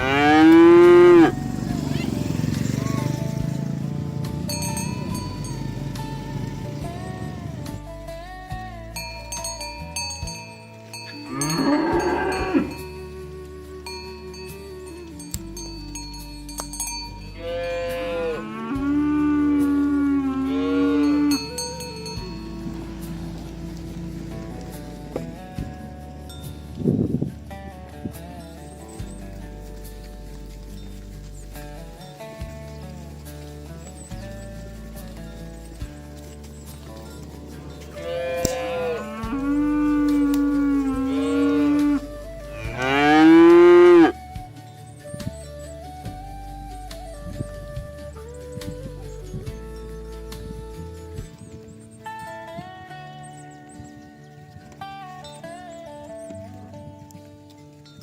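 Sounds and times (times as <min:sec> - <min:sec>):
cow mooing: 0:00.0 - 0:04.2, 0:11.2 - 0:13.0, 0:17.4 - 0:25.4, 0:37.3 - 0:44.2.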